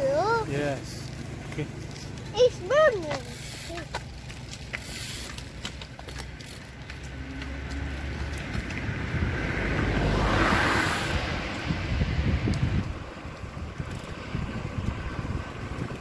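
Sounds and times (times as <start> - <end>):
wind rumbling on microphone: 4.1 - 16.0
car passing by: 6.9 - 16.0.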